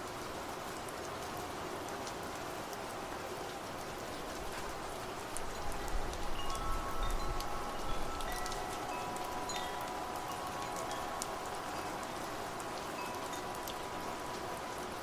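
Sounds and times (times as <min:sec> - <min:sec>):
rain falling: 0:00.0 - 0:15.0
raindrops ticking: 0:04.2 - 0:15.0
wind chimes ringing: 0:05.6 - 0:14.5.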